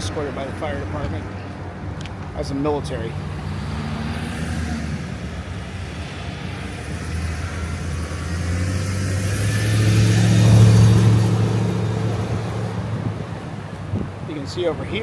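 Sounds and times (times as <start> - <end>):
vehicle engine hum and road noise: 0.0 - 15.0.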